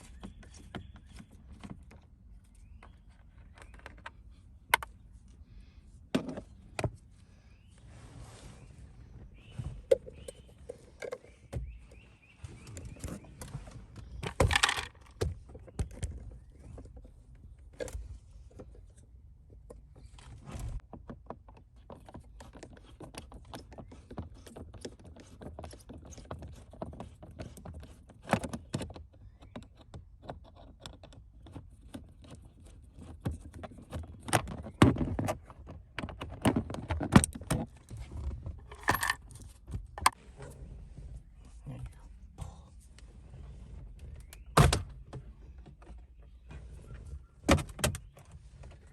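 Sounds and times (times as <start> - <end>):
metal tools clinking: 38.7 - 39.2.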